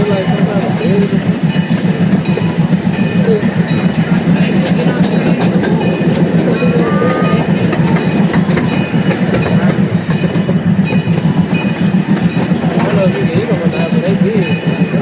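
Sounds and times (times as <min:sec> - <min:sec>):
train rumbling on track: 0:00.0 - 0:15.0
wheels clacking over rails: 0:00.0 - 0:15.0.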